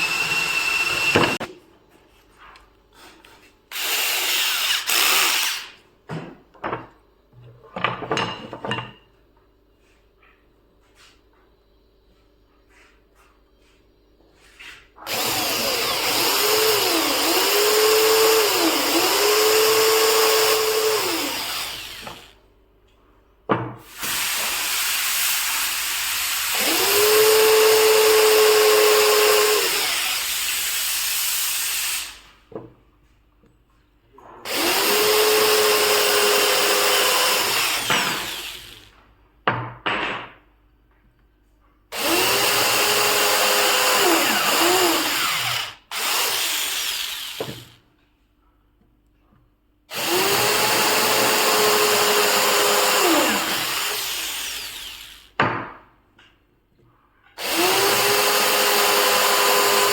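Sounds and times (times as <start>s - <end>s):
power tool cutting wood: 0.0s - 1.5s, 3.7s - 5.7s, 15.1s - 22.3s, 24.0s - 32.2s, 34.5s - 38.9s, 42.0s - 47.8s, 49.9s - 55.4s, 57.4s - 59.9s.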